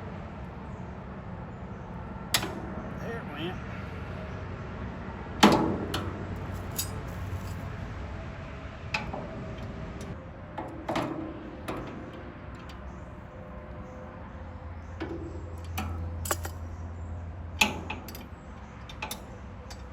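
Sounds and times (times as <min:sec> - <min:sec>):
tools clinking on metal housing: 0:05.4 - 0:07.7, 0:15.0 - 0:16.8, 0:17.6 - 0:19.9.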